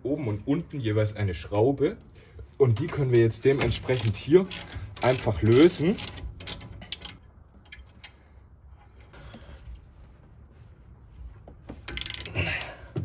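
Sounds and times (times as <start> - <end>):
hand tools clicking: 2.8 - 7.2, 11.9 - 12.8.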